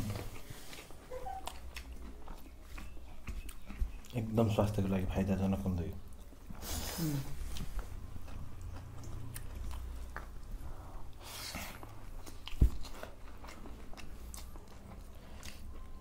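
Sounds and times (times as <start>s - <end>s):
people chewing: 0.0s - 16.0s.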